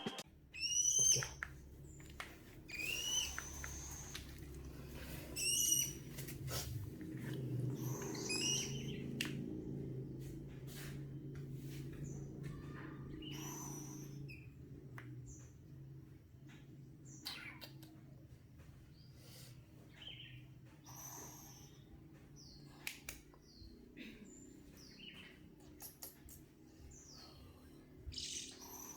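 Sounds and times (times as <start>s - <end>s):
faint low hum: 0.0s - 28.9s
owl chick calling: 0.5s - 1.5s, 2.7s - 4.4s, 5.4s - 6.0s, 7.8s - 9.0s, 28.1s - 28.9s.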